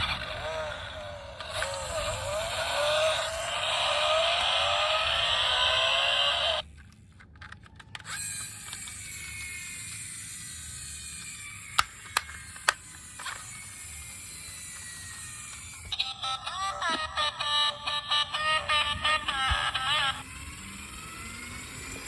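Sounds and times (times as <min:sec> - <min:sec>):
toy motor whir: 0:00.0 - 0:22.0
sharp plastic clicks: 0:06.6 - 0:09.6, 0:11.2 - 0:13.4.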